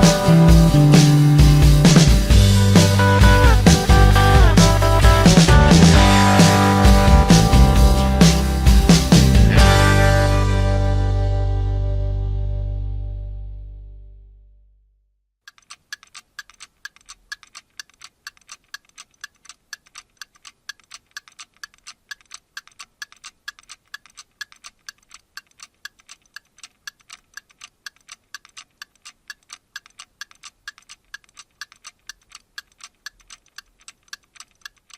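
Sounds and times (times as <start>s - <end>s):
rapid mechanical ticking: 15.4s - 34.9s.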